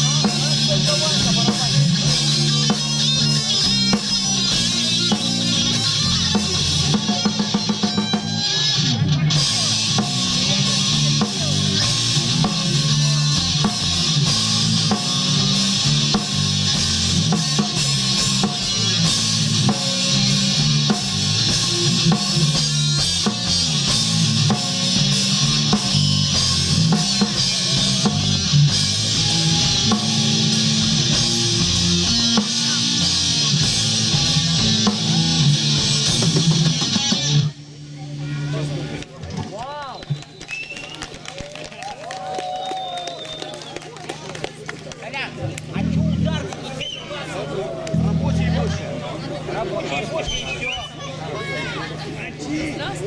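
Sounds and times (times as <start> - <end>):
live rock band playing: 0.0 - 39.4.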